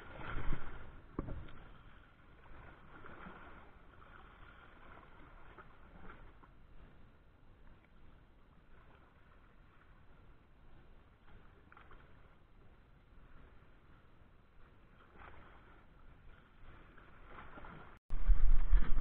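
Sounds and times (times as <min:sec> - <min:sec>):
water noise: 0:00.0 - 0:19.0
wind: 0:00.0 - 0:19.0.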